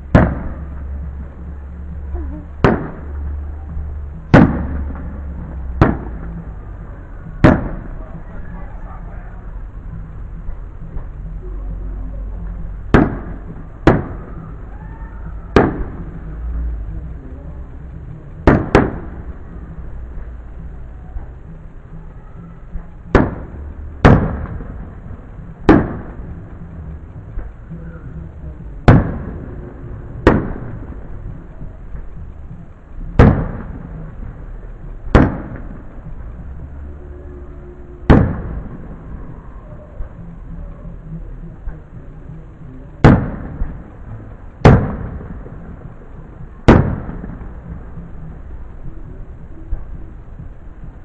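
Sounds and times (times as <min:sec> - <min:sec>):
fireworks bursting: 0:00.0 - 0:08.4, 0:12.4 - 0:16.9, 0:17.6 - 0:37.1, 0:37.8 - 0:40.2, 0:43.0 - 0:50.9
firework shells bursting: 0:23.1 - 0:25.0, 0:44.6 - 0:45.7, 0:46.6 - 0:47.6.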